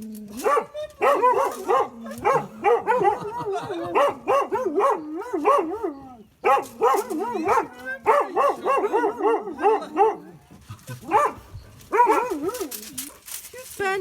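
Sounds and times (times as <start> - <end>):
dog yelping whines: 11.1 - 13.1.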